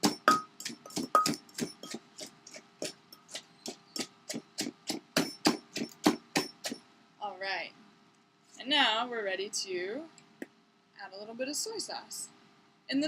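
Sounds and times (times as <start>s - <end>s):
pestle pounding in a mortar: 0.0s - 6.8s.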